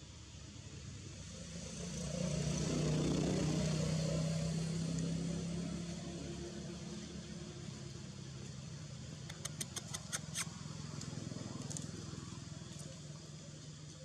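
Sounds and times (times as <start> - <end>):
low engine-like hum: 4.1 - 14.0
sharp clicks: 9.2 - 10.5.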